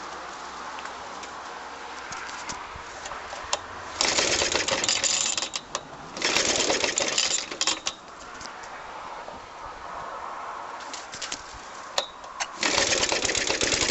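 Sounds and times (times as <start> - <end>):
mower engine cranking: 3.0 - 8.1, 12.0 - 13.9.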